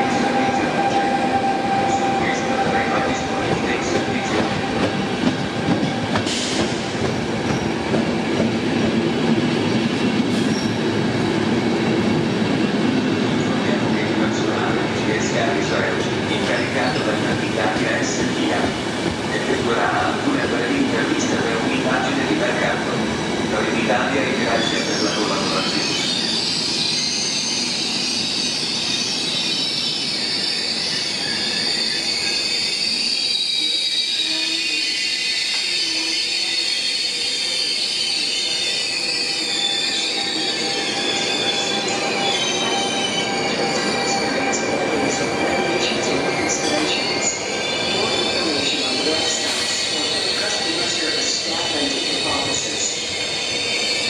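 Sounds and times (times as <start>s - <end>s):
train wheels rumbling on rails: 0.0s - 29.5s
high-pitched wheel squeal: 24.7s - 45.7s.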